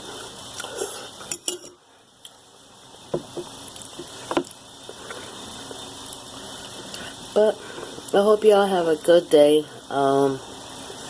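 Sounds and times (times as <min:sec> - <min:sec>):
utensils clinking on dish: 0:01.3 - 0:01.8.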